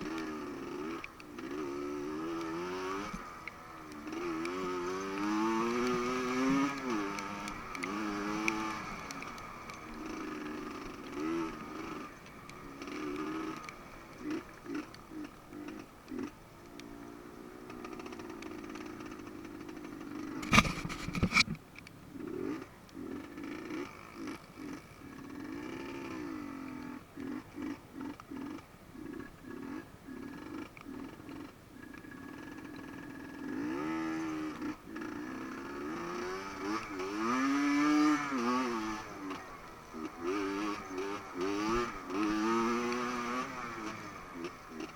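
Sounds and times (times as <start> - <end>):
dirt bike engine running: 0.0 - 44.9.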